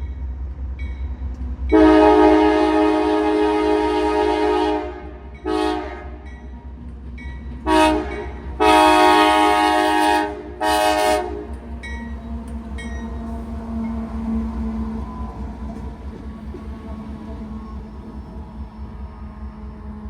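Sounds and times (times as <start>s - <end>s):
low locomotive engine rumble: 0.0s - 20.0s
locomotive air horn chord: 1.7s - 6.2s, 7.7s - 11.6s.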